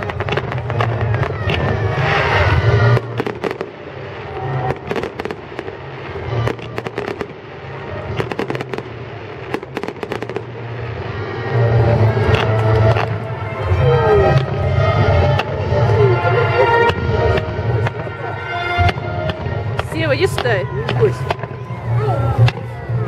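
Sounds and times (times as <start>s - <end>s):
fireworks bangs and crackling: 0.0s - 23.0s
music playing: 5.9s - 23.0s.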